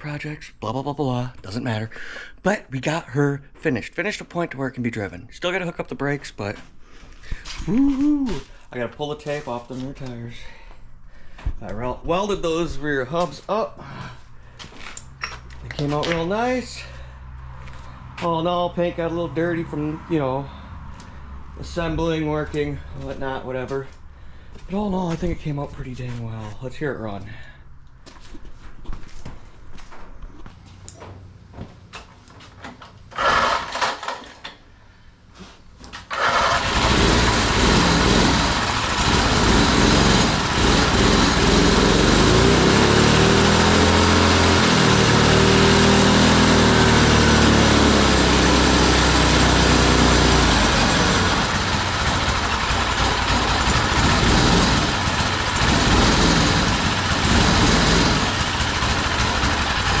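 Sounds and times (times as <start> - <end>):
man talking: 0.0 - 6.7, 7.6 - 10.6, 11.6 - 13.9, 15.6 - 17.0, 18.2 - 20.5, 21.6 - 24.0, 24.7 - 27.6
go-kart engine starting and revving: 33.1 - 34.5, 36.0 - 60.0.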